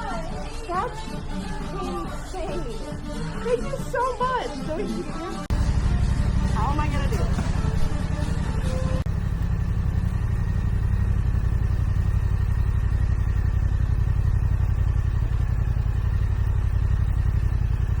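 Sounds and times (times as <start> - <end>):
motorcycle engine running steadily: 5.4 - 18.0.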